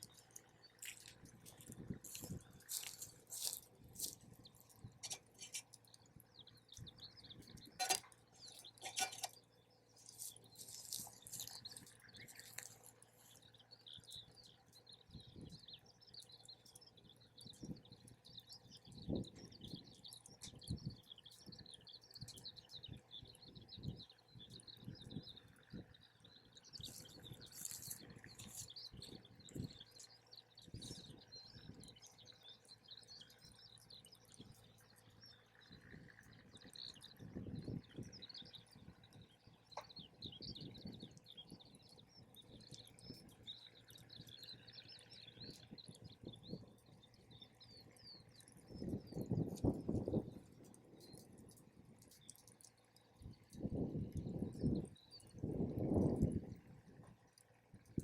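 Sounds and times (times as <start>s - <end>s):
birds chirping: 0.0s - 58.0s
campfire crackling and popping: 39.1s - 58.0s.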